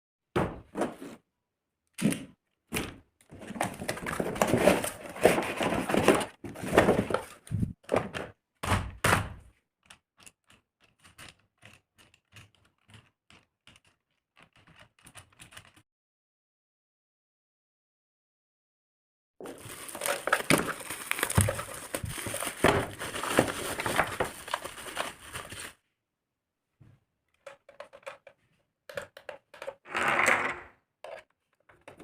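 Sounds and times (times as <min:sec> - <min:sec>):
packaging rustling and scraping: 0:03.3 - 0:07.8, 0:19.4 - 0:25.8
knocks and clicks of handling: 0:26.8 - 0:29.8.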